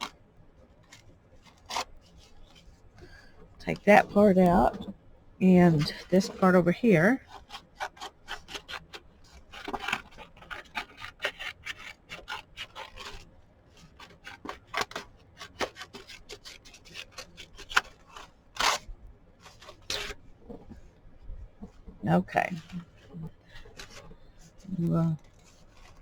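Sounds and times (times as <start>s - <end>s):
scissors cutting paper: 0.9s - 2.6s, 5.7s - 20.2s, 24.7s - 26.0s.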